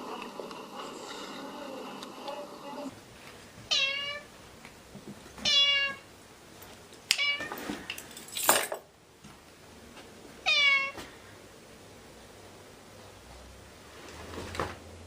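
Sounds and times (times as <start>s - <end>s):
kitten meowing: 5.5s - 6.0s, 10.5s - 11.0s.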